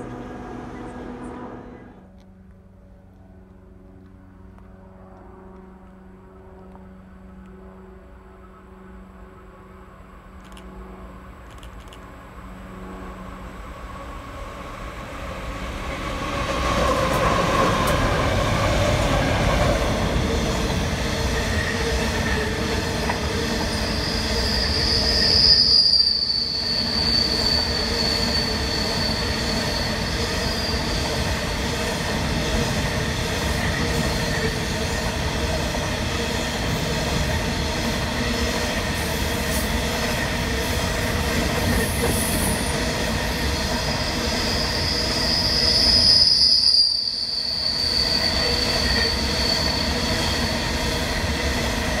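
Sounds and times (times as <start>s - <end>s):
freight train rumbling past: 0.0s - 52.0s
high wheel squeal: 23.4s - 31.6s, 42.0s - 50.8s.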